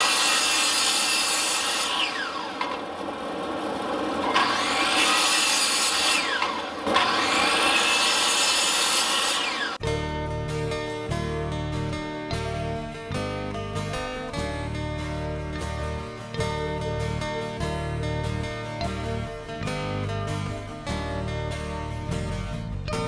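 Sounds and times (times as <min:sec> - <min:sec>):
power saw cutting wood: 0:00.0 - 0:10.0
acoustic guitar music: 0:09.8 - 0:23.0.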